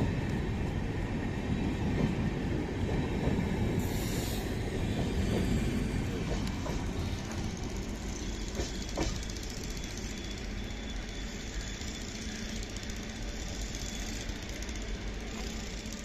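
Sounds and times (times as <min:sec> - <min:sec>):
train coaches rumbling on rails: 0:00.0 - 0:16.0.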